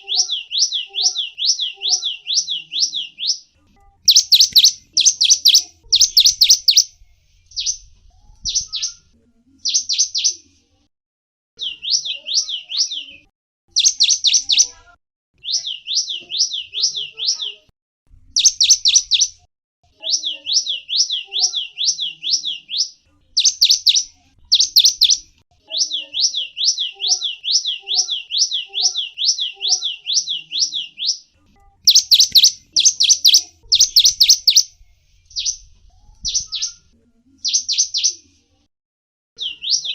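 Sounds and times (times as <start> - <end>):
finch chirping: 0.0 - 6.9, 11.6 - 14.8, 18.4 - 19.3, 20.0 - 31.2, 31.8 - 34.7.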